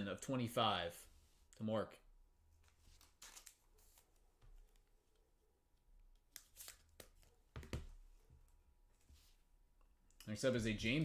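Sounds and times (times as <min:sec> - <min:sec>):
trading cards rustling: 0:02.6 - 0:04.3, 0:06.3 - 0:07.5.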